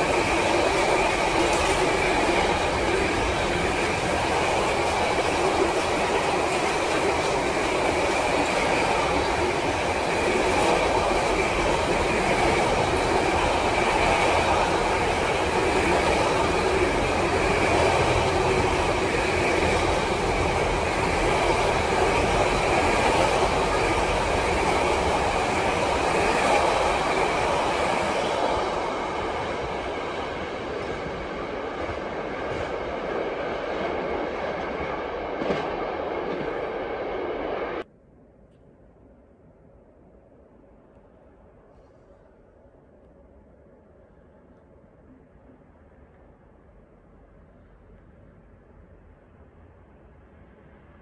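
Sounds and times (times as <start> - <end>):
freight train wheels rumbling: 0.0 - 37.9.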